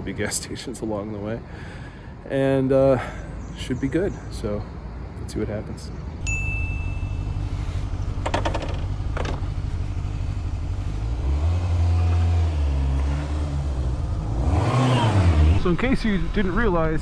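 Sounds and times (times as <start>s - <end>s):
motorcycle engine idling and revving: 6.2s - 16.9s.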